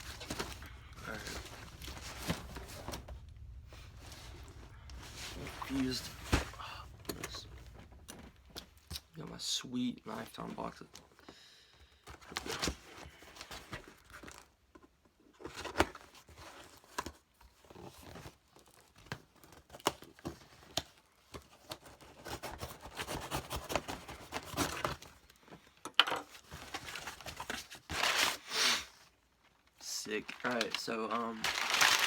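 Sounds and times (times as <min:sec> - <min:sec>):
knife cutting cardboard: 0:21.8 - 0:25.0.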